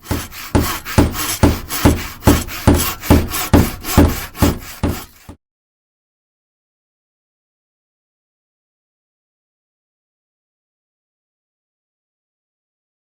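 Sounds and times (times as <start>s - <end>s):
hand tool stroking across wood: 0.0s - 5.4s.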